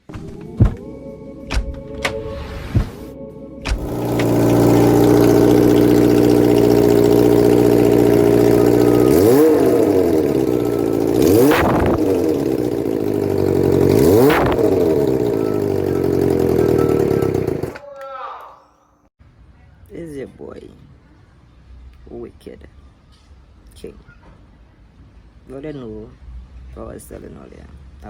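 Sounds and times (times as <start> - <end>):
motorcycle engine idling and revving: 3.7 - 17.8.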